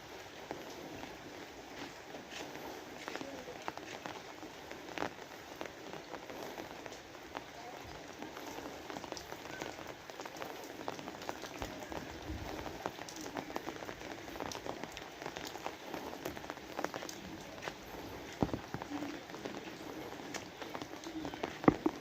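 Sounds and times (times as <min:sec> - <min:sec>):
raindrops ticking close by: 0:00.0 - 0:22.0
steady rain falling: 0:00.0 - 0:22.0.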